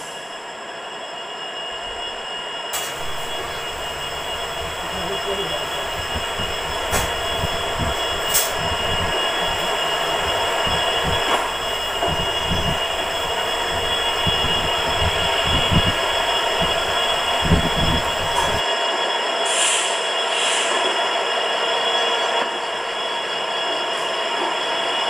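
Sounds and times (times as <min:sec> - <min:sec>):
train coach running noise: 0:00.0 - 0:25.0
wheels rumbling and knocking on track: 0:02.8 - 0:18.6
short hisses: 0:19.5 - 0:20.8.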